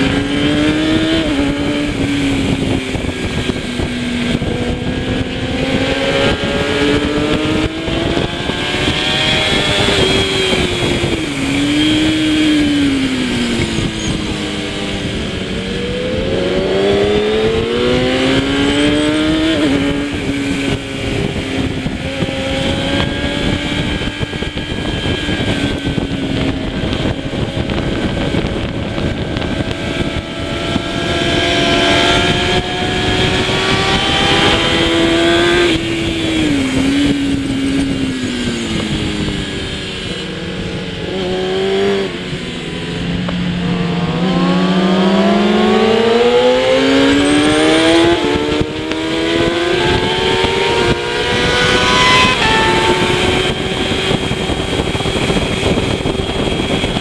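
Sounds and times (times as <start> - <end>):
motorcycle engine running hard: 0.0 - 57.0.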